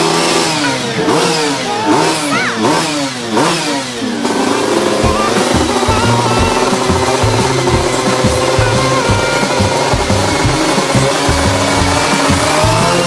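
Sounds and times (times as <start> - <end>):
two-stroke scooter engine revving: 0.0 - 13.0.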